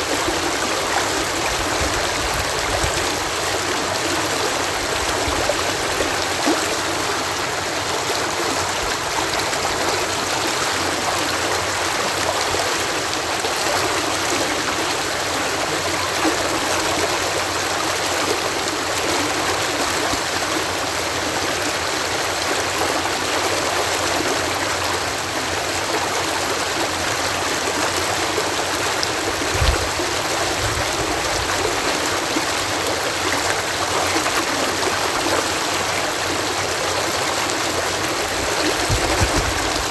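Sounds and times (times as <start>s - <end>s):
water rushing through lock: 0.0s - 39.9s
brief low thump: 29.5s - 30.9s.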